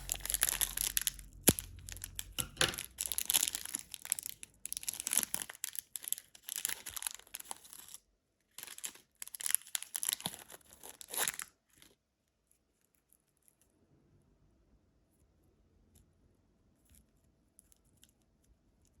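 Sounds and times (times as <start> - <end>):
candy wrapper crinkling: 0.0 - 13.6.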